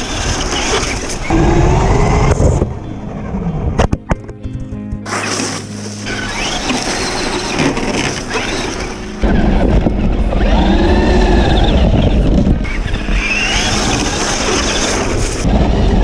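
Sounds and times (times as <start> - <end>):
low rumble: 1.3 - 5.1, 9.1 - 16.0
radio-controlled car motor whine: 6.1 - 15.8.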